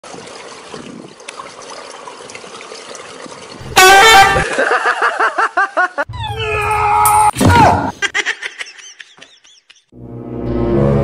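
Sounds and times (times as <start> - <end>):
loud honk-like blast: 3.6 - 4.6.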